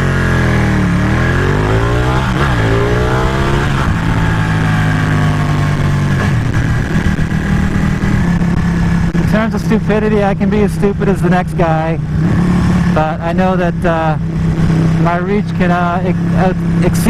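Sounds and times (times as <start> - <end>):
motorcycle engine revving: 0.0 - 17.0
wind rush on microphone: 1.6 - 11.0, 14.2 - 15.2.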